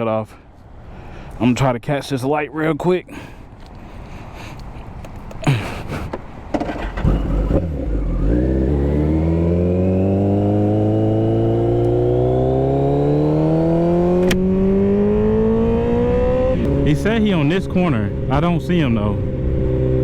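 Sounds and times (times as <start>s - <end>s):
motorcycle engine accelerating: 6.6s - 20.0s
sharp click: 14.2s - 14.4s.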